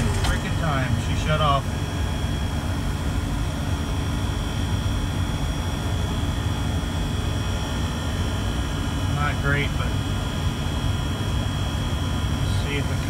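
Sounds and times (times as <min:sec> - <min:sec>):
high-pitched whine: 0:00.0 - 0:08.3
low mechanical rumble: 0:00.0 - 0:13.0.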